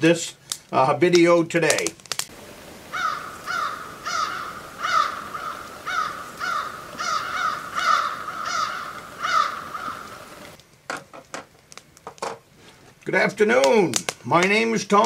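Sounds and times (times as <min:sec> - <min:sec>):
bird calling with falling notes: 0:02.8 - 0:10.5.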